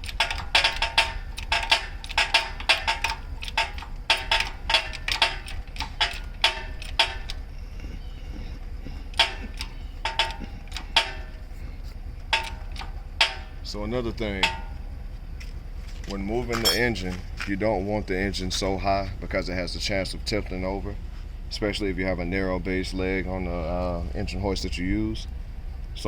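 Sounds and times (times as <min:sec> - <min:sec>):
metal ratchet clicking: 0:00.0 - 0:07.5, 0:09.1 - 0:15.0.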